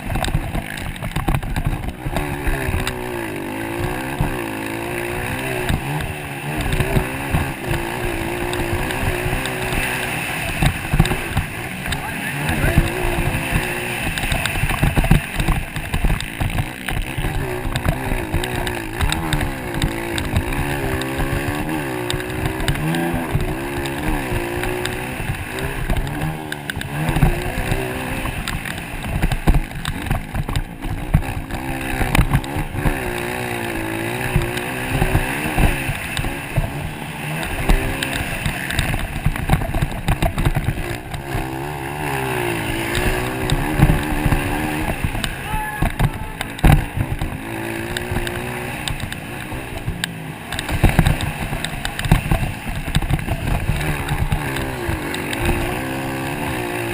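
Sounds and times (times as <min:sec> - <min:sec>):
dirt bike engines revving: 0:00.0 - 0:56.9.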